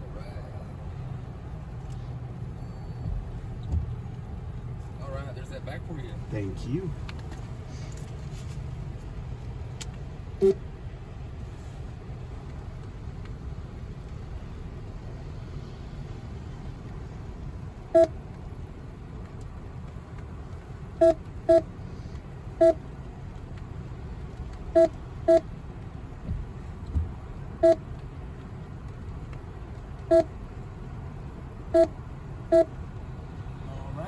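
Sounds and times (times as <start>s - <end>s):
car engine idling: 0.0s - 34.0s
electronic keypad beeps: 24.8s - 25.4s.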